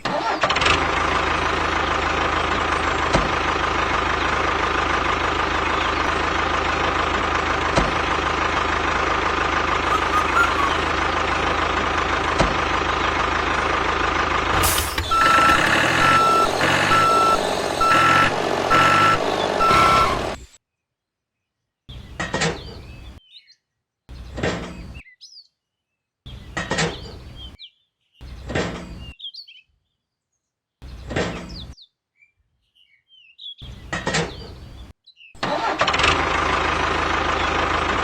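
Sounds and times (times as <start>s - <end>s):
engine rumble: 0.0s - 20.6s, 33.6s - 38.0s
reversing alarm beeping: 9.9s - 11.0s, 14.6s - 20.4s
motor drone: 14.5s - 20.4s.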